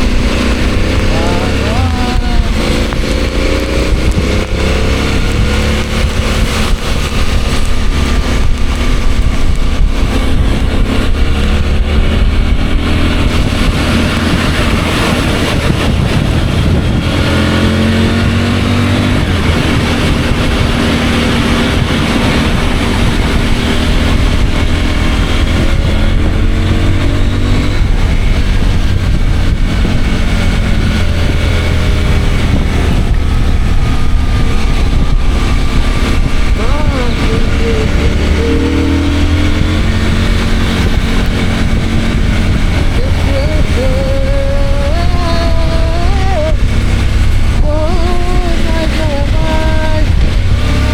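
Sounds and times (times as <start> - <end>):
motorcycle engine running: 0.0 - 50.9
wind rumble: 0.0 - 50.9.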